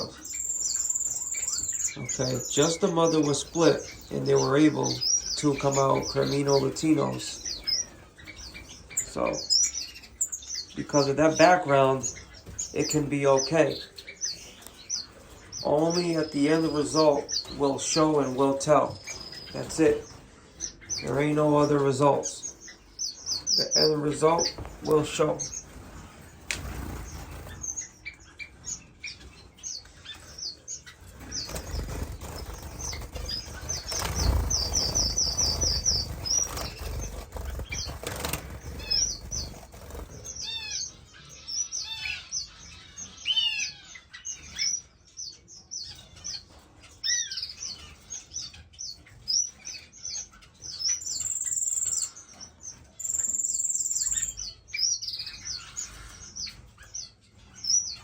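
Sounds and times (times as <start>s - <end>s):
bird trill: 0.0s - 58.0s
finches chirping: 0.0s - 58.0s
wings flapping: 23.7s - 28.0s, 31.0s - 40.7s.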